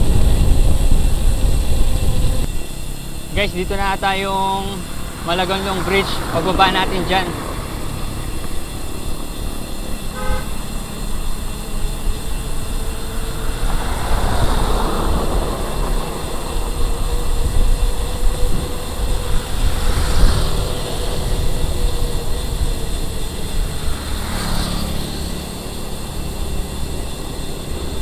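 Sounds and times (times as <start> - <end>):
passing vehicles: 0.0 - 28.0
road and wind rumble: 0.0 - 28.0
vehicle horn toot: 10.0 - 11.0.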